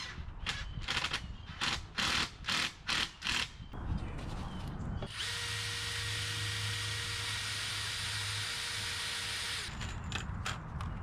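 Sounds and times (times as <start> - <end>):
power drill driving a screw: 5.1 - 9.8.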